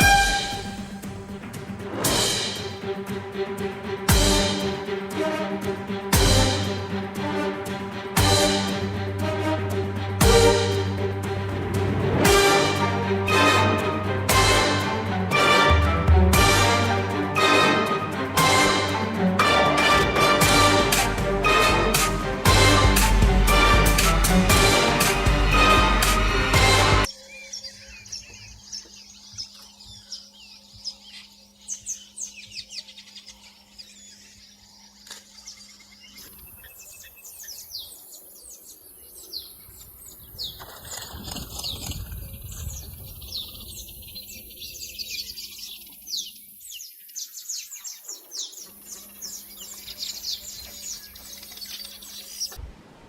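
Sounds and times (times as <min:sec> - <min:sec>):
birds chirping: 0:00.0 - 0:07.4, 0:20.5 - 0:52.6.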